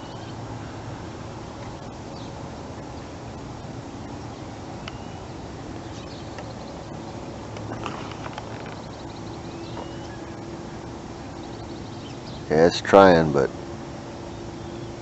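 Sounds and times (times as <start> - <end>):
low hum: 0.0 - 15.0
outdoor background hiss: 0.0 - 15.0
faint bird chirps: 4.2 - 12.5.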